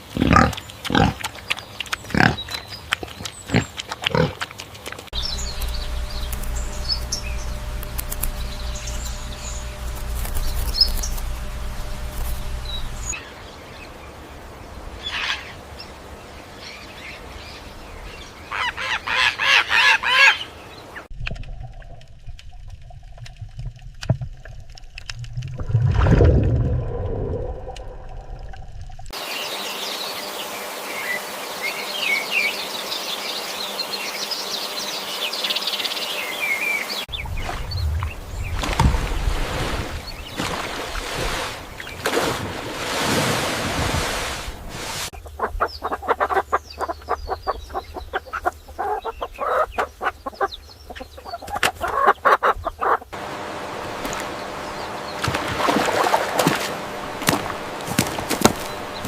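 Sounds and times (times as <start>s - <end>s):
birds chirping: 0.0s - 21.1s, 29.2s - 42.5s, 44.5s - 59.0s
rustling: 5.2s - 13.2s.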